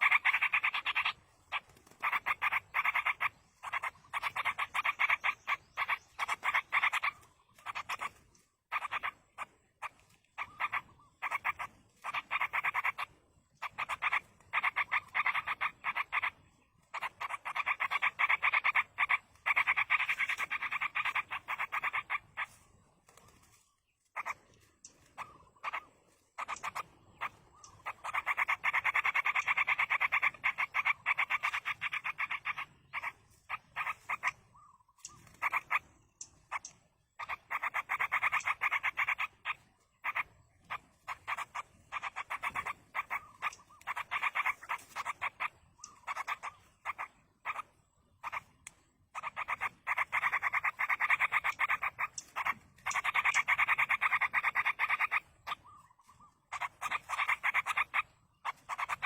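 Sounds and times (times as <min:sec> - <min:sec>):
nestlings begging chatter: 0:00.0 - 0:59.0.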